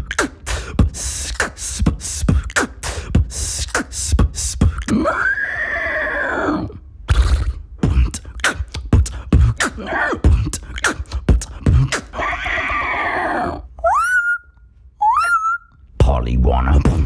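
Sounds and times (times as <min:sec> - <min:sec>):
beatboxing kick and click beats: 0:00.0 - 0:05.0, 0:07.1 - 0:12.2, 0:16.0 - 0:17.0
beatboxer hissing: 0:00.0 - 0:05.2, 0:07.1 - 0:13.5
whistled parrot squawks: 0:13.8 - 0:15.7.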